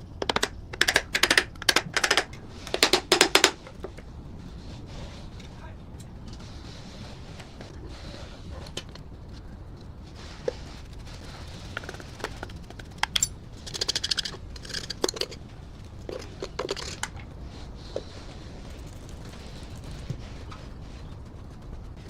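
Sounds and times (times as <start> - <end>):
rapid ticks: 0.0 - 4.1, 8.6 - 22.0
clicks and taps on metal: 0.1 - 4.0.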